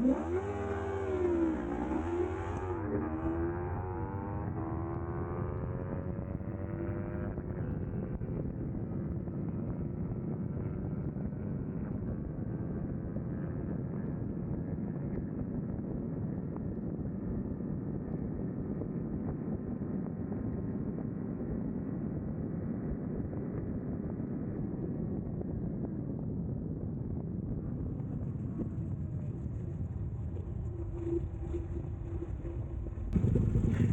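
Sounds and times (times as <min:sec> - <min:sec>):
motorcycle engine running: 0:00.0 - 0:08.2, 0:27.5 - 0:33.9
wind rush over microphone: 0:23.4 - 0:33.9.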